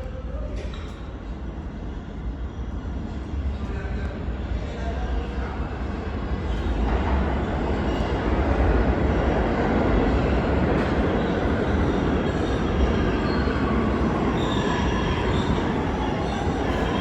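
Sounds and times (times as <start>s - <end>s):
subway train rumbling on rails: 0.0s - 17.0s
high wheel squeal: 10.8s - 17.0s.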